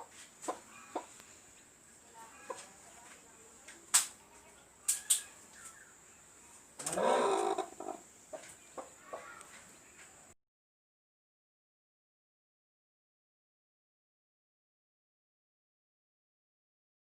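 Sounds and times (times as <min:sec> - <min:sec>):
chickens calling: 0:00.0 - 0:01.4, 0:04.4 - 0:10.2.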